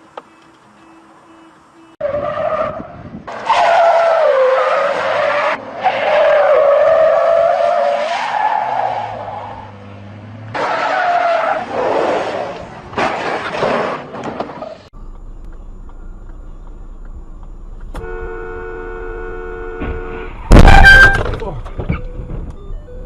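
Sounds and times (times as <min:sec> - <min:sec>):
car tyres squealing: 0:02.0 - 0:09.8, 0:10.5 - 0:14.9, 0:20.0 - 0:22.0.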